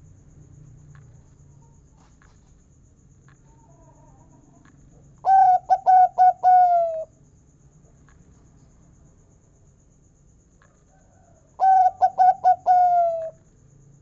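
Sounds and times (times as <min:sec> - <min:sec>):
dove cooing: 0:05.2 - 0:07.1, 0:11.6 - 0:13.4.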